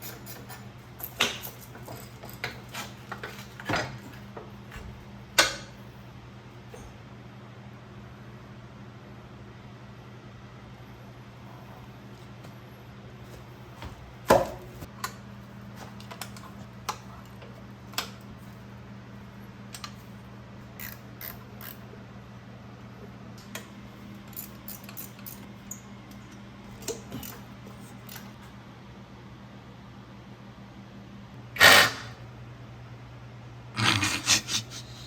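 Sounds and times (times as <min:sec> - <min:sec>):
hand tools and metal parts clinking: 0:00.0 - 0:04.2, 0:24.2 - 0:25.5.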